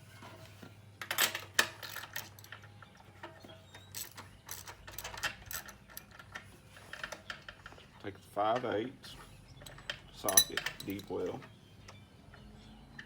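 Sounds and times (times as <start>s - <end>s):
metal hand tools clinking: 9.6s - 11.5s.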